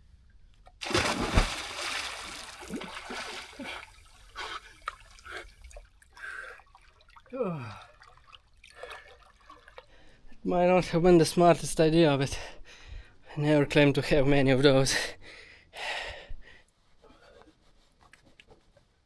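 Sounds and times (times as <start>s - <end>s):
person splashing into water: 0.8s - 4.1s
water sloshing and dripping: 0.8s - 10.0s.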